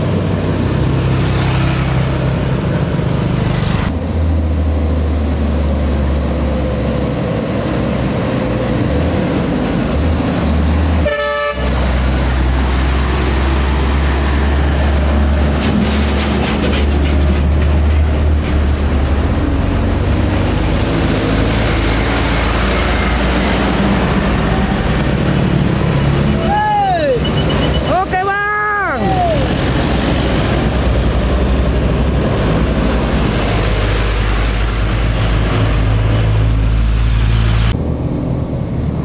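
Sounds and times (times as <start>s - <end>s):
truck diesel engine rumbling: 0.0s - 39.0s
horn toot: 11.0s - 11.9s.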